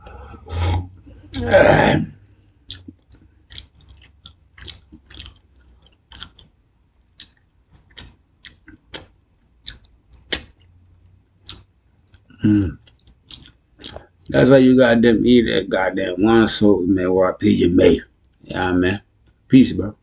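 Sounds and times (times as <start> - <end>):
mouth clicks: 0.2 - 6.5, 7.2 - 10.7, 11.4 - 14.4
chewing crunchy fried chicken: 2.1 - 14.3.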